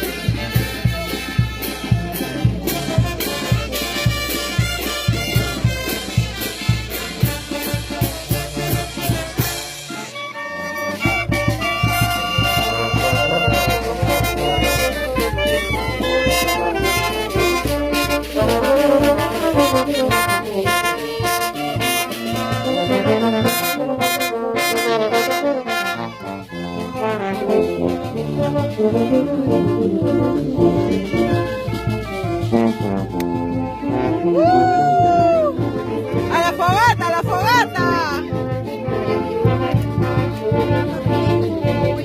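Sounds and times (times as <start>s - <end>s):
brass band music: 0.0s - 42.0s.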